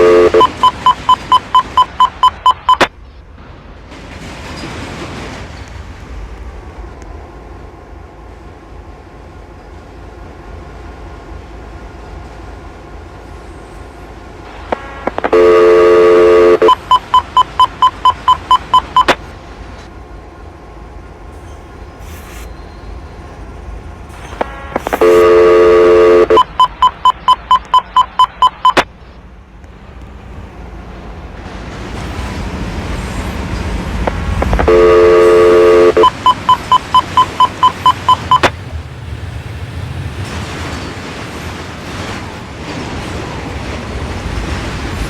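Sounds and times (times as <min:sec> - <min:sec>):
crossing bell ringing: 0:00.0 - 0:02.8, 0:34.1 - 0:38.4
low road noise hum: 0:00.0 - 0:45.0
locomotive air horn: 0:14.5 - 0:16.7, 0:24.2 - 0:26.7.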